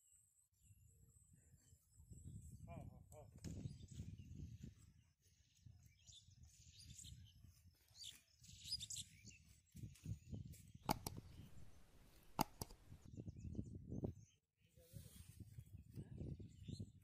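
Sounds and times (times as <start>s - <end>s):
sharp clicks: 10.8s - 13.1s.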